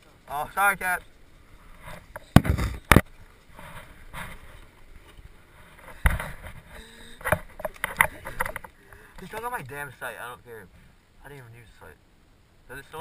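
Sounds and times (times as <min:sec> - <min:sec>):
wind noise on microphone: 0:01.8 - 0:03.1
sharp knocks and thumps: 0:02.0 - 0:03.1, 0:05.9 - 0:08.7.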